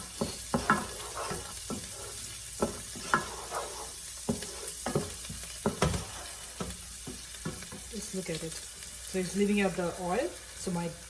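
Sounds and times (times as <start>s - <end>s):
spoon scraping a pan: 0.0s - 8.0s
spices sizzling in oil: 0.0s - 11.0s.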